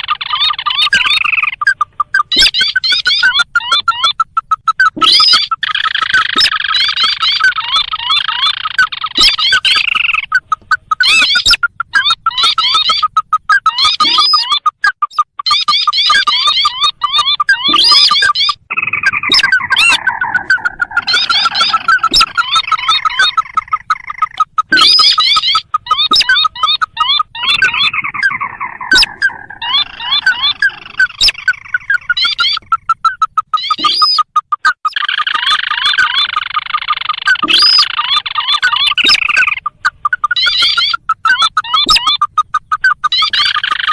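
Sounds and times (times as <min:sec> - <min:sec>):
bird calls fast repeated notes: 0:00.0 - 0:43.9
rising bird chirps: 0:00.0 - 0:43.9
sharp clicks: 0:12.8 - 0:43.9.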